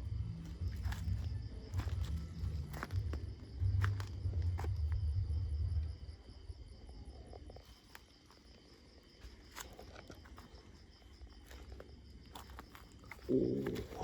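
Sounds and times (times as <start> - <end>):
low rumble: 0.0 - 6.2
insects chirping: 0.0 - 14.0.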